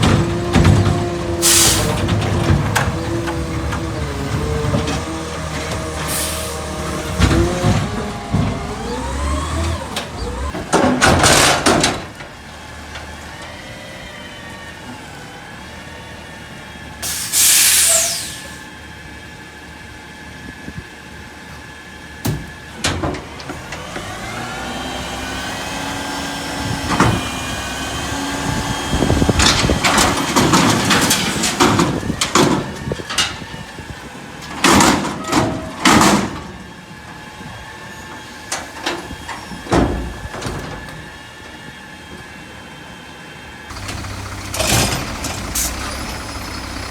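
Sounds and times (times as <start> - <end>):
garbage truck engine running: 0.0 - 17.5, 18.1 - 46.9
air hissing: 17.0 - 18.6.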